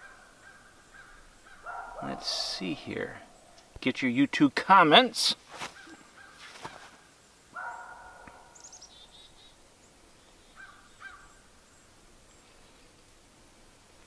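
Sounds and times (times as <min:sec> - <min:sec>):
high falling bird chirps: 0:00.0 - 0:03.7, 0:05.4 - 0:13.0.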